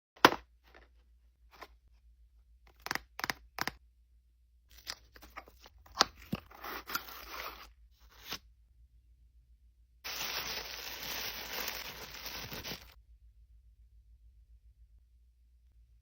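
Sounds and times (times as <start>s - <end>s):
packaging tearing: 10.1s - 13.0s
plastic packaging crackling: 10.1s - 13.0s.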